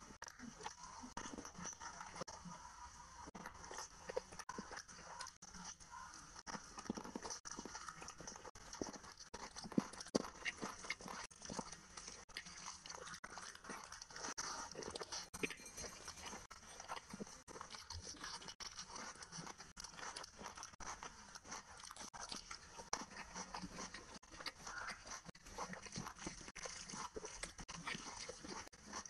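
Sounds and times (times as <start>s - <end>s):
person chewing food: 0.0s - 29.0s
small crunches and mouth clicks: 0.0s - 29.0s.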